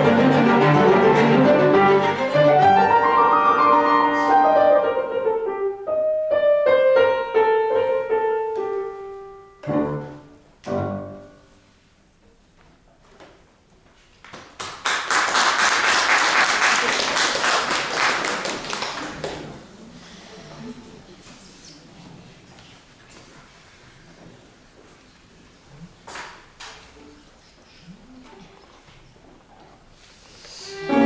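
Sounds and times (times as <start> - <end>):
piano quartet playing classical piece: 0.0 - 11.6, 30.7 - 31.0.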